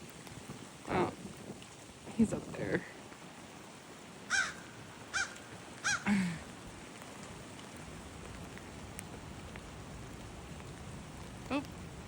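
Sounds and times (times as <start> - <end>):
hiss of falling rain: 0.0 - 12.0
crow cawing: 4.3 - 6.2.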